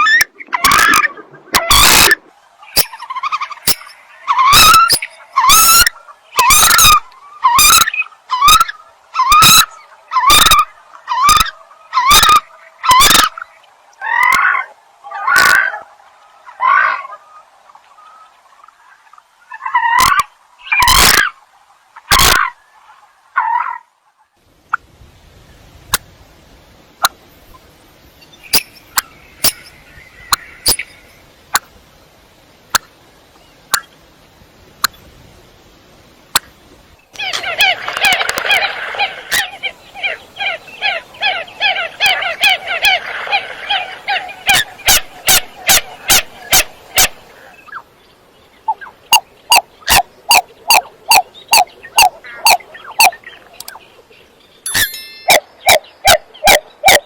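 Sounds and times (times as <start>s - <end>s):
coot calling: 0.0s - 13.4s, 37.2s - 47.9s, 48.6s - 53.8s, 54.8s - 57.0s.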